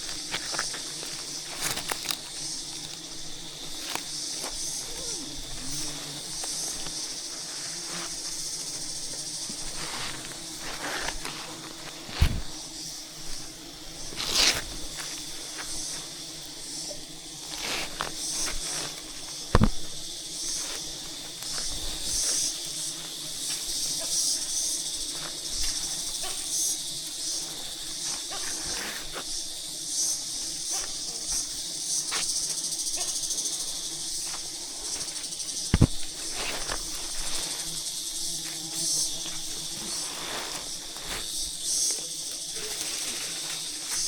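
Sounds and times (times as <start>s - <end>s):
insects hissing: 0.0s - 44.0s
sharp knocks: 19.5s - 19.9s.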